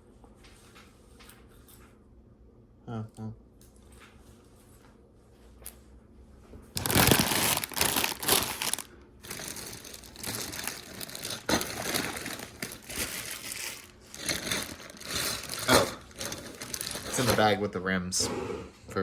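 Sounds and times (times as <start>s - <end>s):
plastic bags crinkling: 6.8s - 17.6s.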